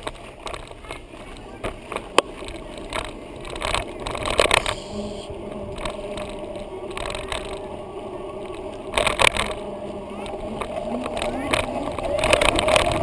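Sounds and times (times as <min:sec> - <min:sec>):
bicycle riding rumble: 0:00.0 - 0:13.0.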